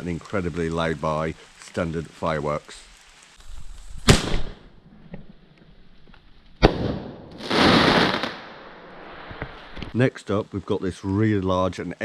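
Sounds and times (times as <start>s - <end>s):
firework bangs: 4.0s - 4.8s, 6.6s - 10.0s
hissing rush: 7.3s - 10.1s.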